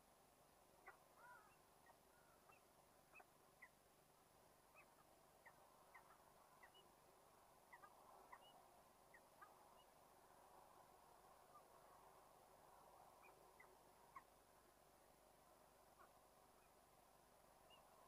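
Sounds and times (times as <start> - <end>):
steady low hiss: 0.0 - 18.0
bird chirping: 0.8 - 3.8, 4.7 - 7.0, 7.6 - 10.0, 13.1 - 14.4, 17.5 - 18.0.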